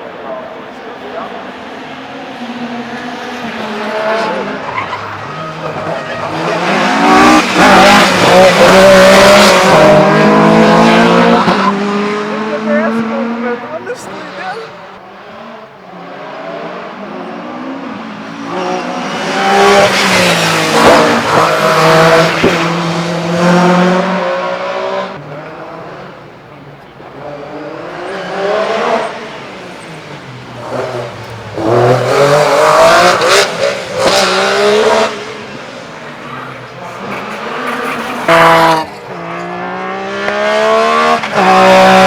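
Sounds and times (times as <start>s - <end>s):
rally car engine at full throttle: 0.0s - 42.0s.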